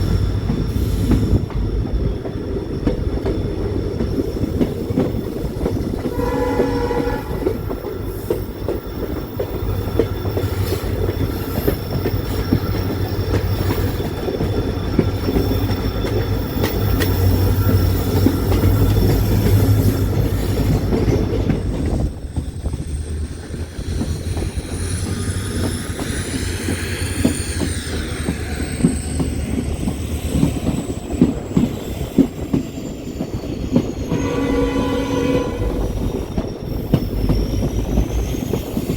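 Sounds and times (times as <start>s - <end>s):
train wheels rumbling on track: 0.0s - 38.9s
wavering wheel squeal: 0.0s - 38.9s
train horn blast: 6.0s - 7.8s, 34.1s - 36.0s.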